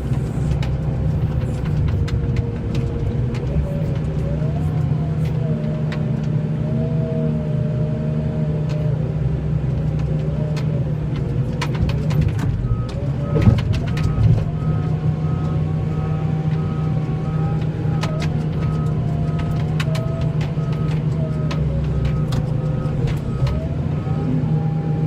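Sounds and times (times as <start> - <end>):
vehicle engine running: 0.0 - 25.0
sharp clicks and knocks: 0.1 - 6.1, 9.8 - 15.6, 16.4 - 23.7.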